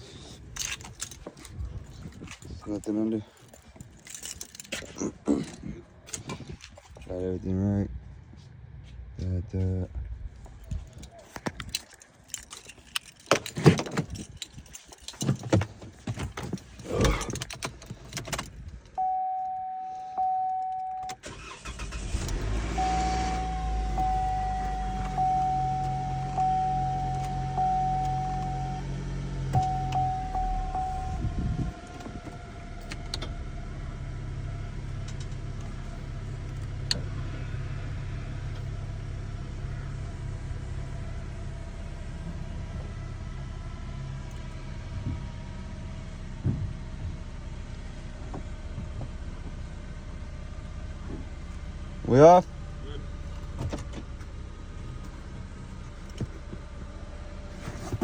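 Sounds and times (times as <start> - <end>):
car engine starting and idling: 0.0 - 7.9, 9.2 - 58.0
keys jingling: 0.1 - 7.1, 10.5 - 19.0, 20.5 - 33.2
dashboard warning chime: 19.0 - 22.0, 22.7 - 31.8.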